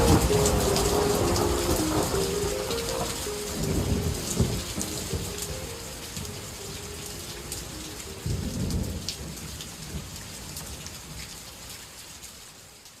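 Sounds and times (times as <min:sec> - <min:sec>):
thunder rumble: 0:00.0 - 0:10.1
rain falling: 0:00.0 - 0:13.0.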